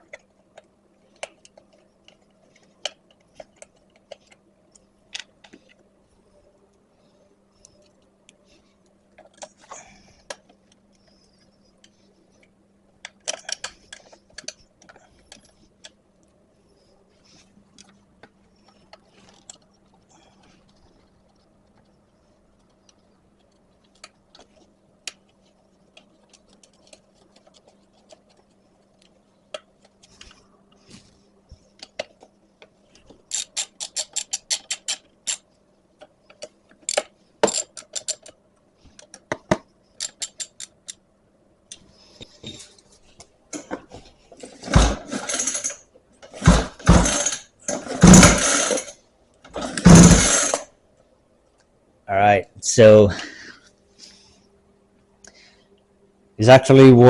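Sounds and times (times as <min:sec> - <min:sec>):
recoil starter cord pulls: 0:44.5 - 0:50.7.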